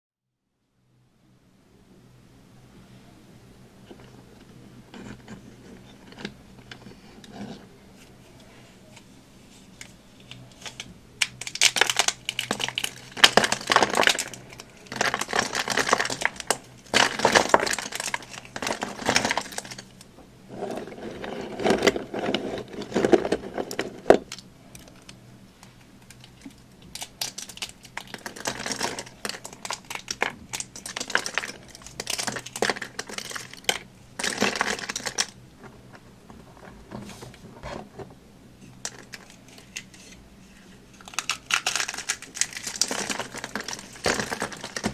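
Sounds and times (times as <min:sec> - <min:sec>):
dry soap crunching by hand: 0:10.2 - 0:36.8, 0:38.8 - 0:44.9.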